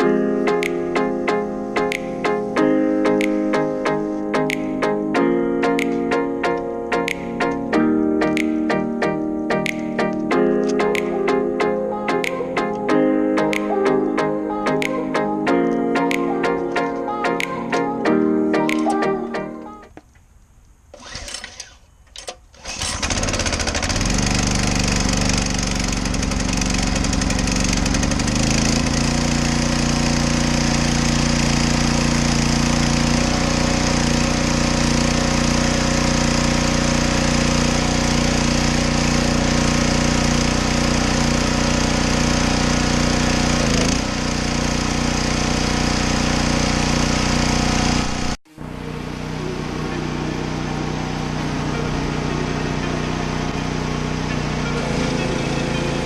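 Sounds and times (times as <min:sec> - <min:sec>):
pressure washer running: 0:22.6 - 0:56.0.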